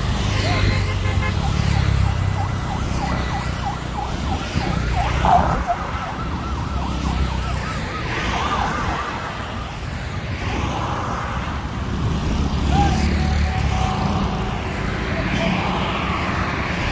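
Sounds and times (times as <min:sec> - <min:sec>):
warbling electronic alarm: 0:01.0 - 0:09.9.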